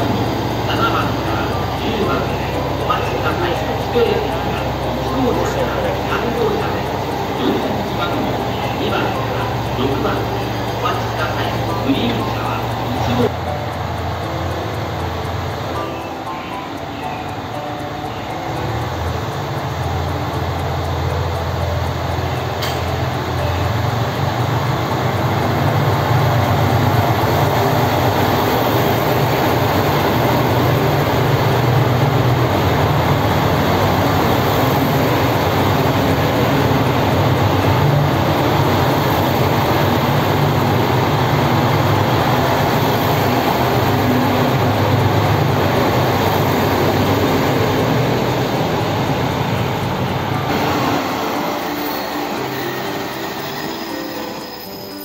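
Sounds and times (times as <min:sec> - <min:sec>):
train rumbling past: 0:00.0 - 0:55.0.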